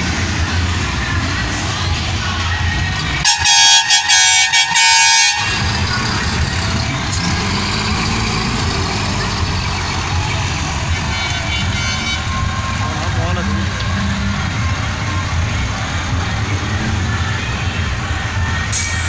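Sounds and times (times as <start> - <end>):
truck engines running: 0.0 - 19.0
truck air horn blasts: 3.2 - 5.9, 10.9 - 12.7.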